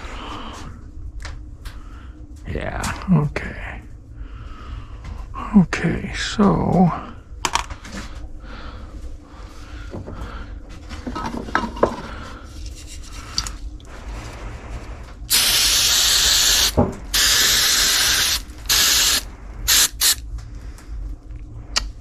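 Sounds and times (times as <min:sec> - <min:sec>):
pressurized nozzle hissing: 0:15.3 - 0:20.2.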